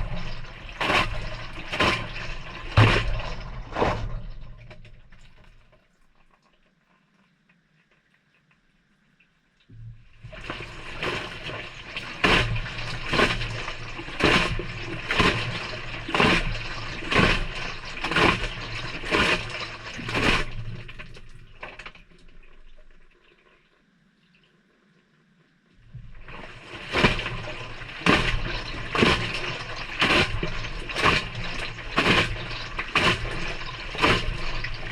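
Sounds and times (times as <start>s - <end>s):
washing machine motor hum: 0.0s - 5.5s, 9.7s - 21.6s, 25.8s - 34.9s
water and clothes sloshing: 0.0s - 6.4s, 9.9s - 23.6s, 25.8s - 34.9s.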